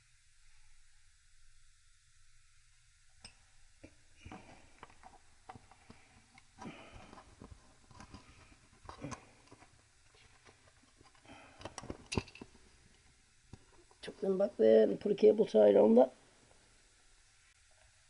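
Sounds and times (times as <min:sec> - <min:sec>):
small parts clicking and rustling: 0:04.2 - 0:14.0.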